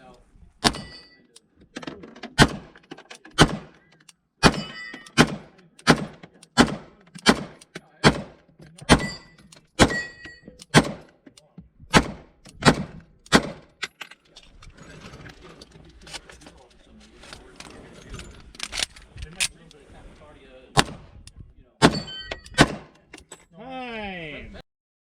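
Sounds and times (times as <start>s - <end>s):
gunshots: 0.6s - 1.1s, 2.4s - 2.8s, 3.4s - 3.8s, 4.4s - 9.2s, 9.8s - 11.1s, 11.9s - 13.7s, 20.8s - 21.2s, 21.8s - 23.0s
ringing of steel targets hit: 0.6s - 1.4s, 4.4s - 7.6s, 8.2s - 11.0s, 21.8s - 22.9s.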